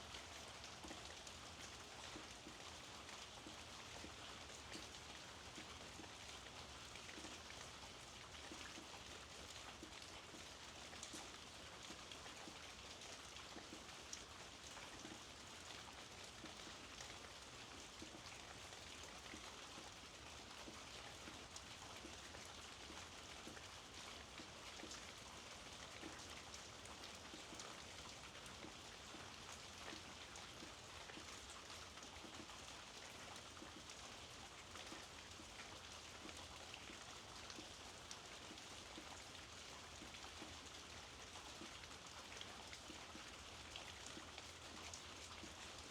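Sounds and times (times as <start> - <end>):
faint rain falling: 0.0 - 45.9.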